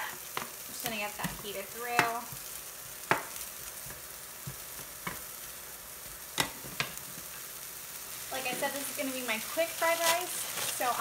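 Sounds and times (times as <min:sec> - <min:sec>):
ham sizzling in frying pan: 0:00.0 - 0:11.0
spatula tapping pan: 0:01.2 - 0:05.3, 0:06.3 - 0:07.0.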